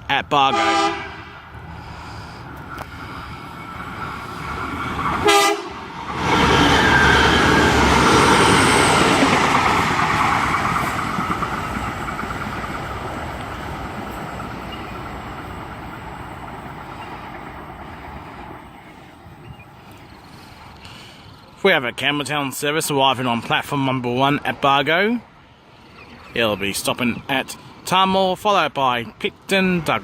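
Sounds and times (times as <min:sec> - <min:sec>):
diesel train passing: 0:00.0 - 0:30.0
train horn blast: 0:00.5 - 0:01.4, 0:05.2 - 0:07.8.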